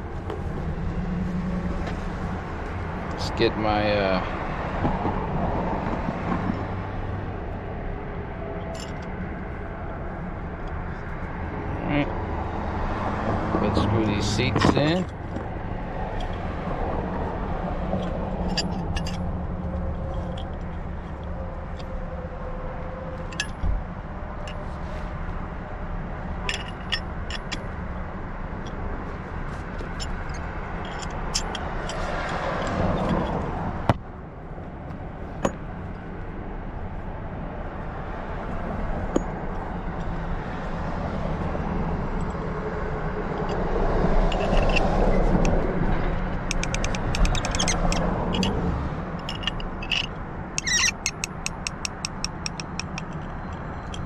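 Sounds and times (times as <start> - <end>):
sharp metal clicks and clinks: 17.9 - 21.9, 23.2 - 23.6, 26.4 - 27.8, 29.8 - 33.6, 43.4 - 54.0.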